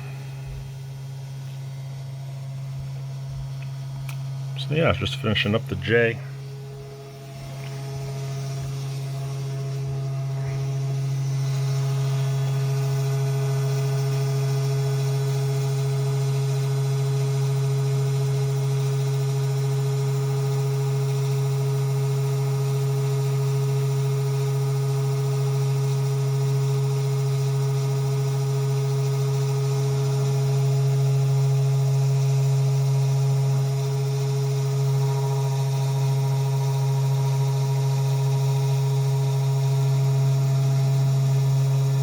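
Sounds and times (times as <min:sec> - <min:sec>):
engraving machine motors humming: 0:00.0 - 0:18.9, 0:31.5 - 0:42.0.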